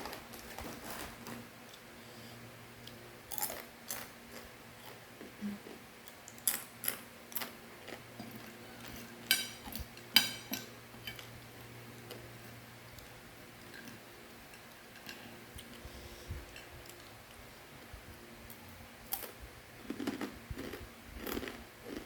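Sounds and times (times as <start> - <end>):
faint low hum: 0.0 - 22.0
crunchy snack chewing: 19.1 - 22.0.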